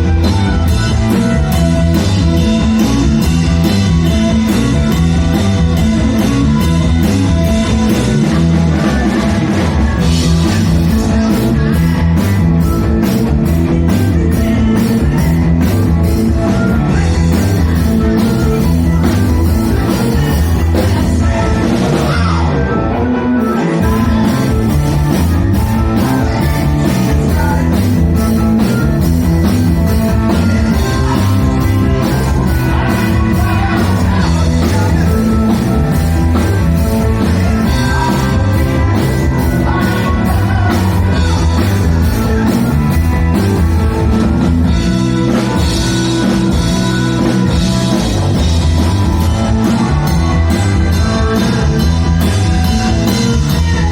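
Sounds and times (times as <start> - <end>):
guitar and bass: 0.0 - 53.9
person singing: 14.3 - 44.6.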